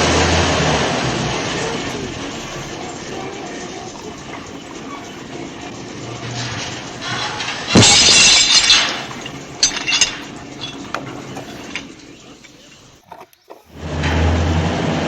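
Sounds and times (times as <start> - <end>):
hard objects clattering: 0.0 - 13.9.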